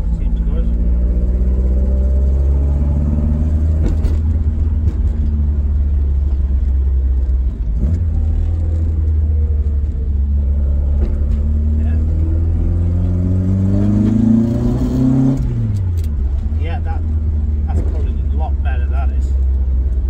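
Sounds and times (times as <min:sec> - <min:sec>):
car engine running: 0:00.0 - 0:20.0
low road rumble: 0:00.0 - 0:20.0.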